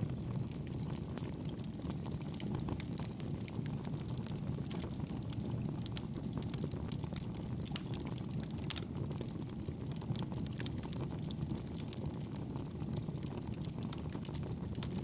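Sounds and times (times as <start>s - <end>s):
fireplace fire roaring and crackling: 0.0s - 15.0s.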